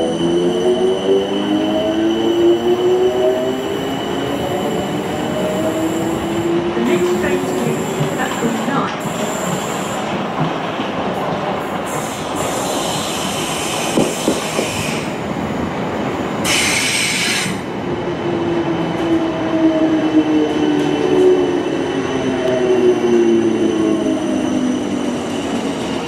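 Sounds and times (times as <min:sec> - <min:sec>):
train wheel-on-rail rumble: 0:00.0 - 0:26.0
train knock: 0:13.8 - 0:14.9.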